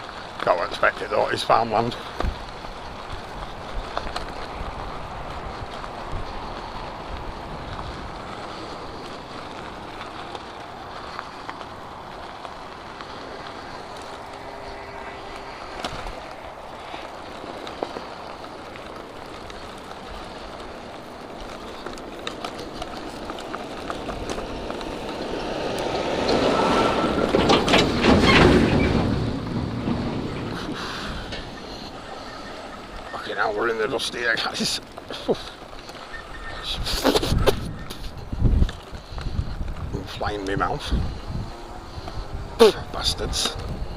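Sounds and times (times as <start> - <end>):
bike tyre rumble on dirt: 0.0 - 43.9
wind buffeting microphone: 0.0 - 43.9
small clicks and rattles: 1.7 - 26.5.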